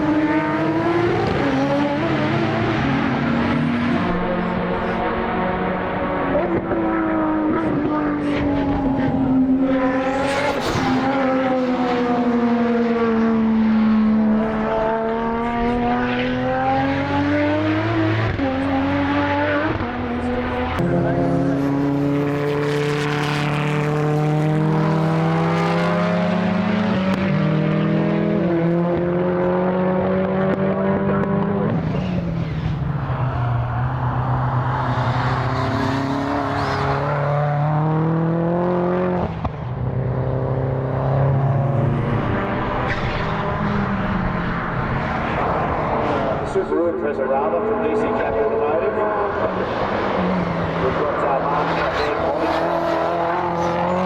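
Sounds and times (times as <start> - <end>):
race car engines running hard: 0.0 - 54.0.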